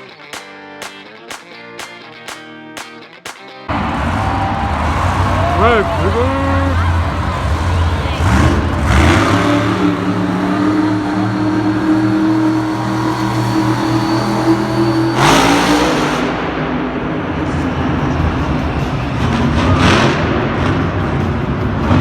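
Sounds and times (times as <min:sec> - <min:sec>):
deep motor drone: 0:03.7 - 0:14.7.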